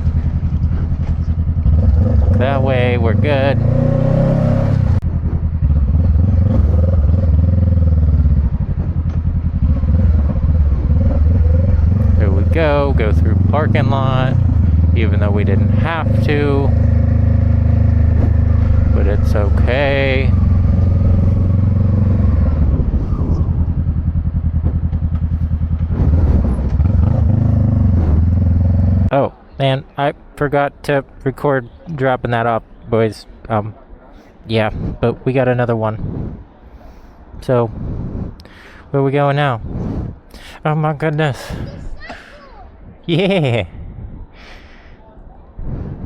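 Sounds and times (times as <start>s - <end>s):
motorcycle engine running: 0.0s - 29.1s.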